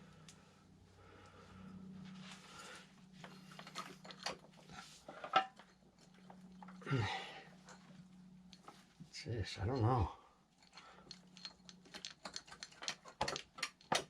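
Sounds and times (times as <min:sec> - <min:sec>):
steady low hum: 0:00.0 - 0:13.9
tools and metal parts clinking: 0:03.2 - 0:14.0.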